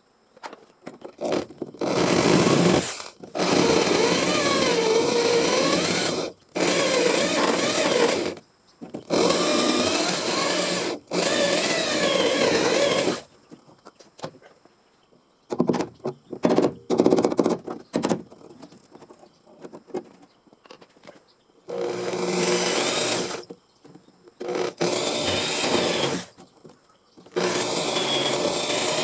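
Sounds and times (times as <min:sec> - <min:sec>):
power tool cutting sheet metal: 0:21.8 - 0:23.4, 0:24.5 - 0:26.3, 0:27.3 - 0:29.0.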